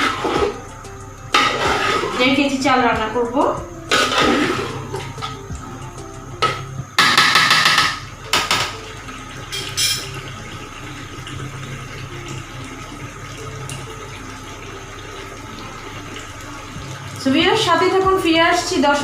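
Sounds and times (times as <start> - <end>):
water splashing and pouring: 0.0 - 2.6, 3.9 - 5.8, 7.1 - 19.0.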